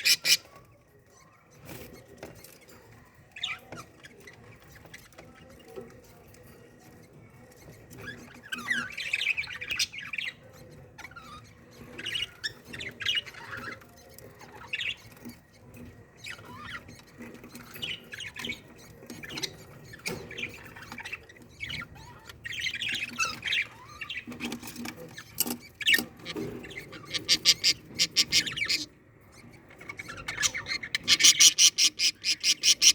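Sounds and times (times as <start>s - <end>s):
budgerigars chirping and squawking: 0.0s - 0.7s, 6.8s - 32.9s.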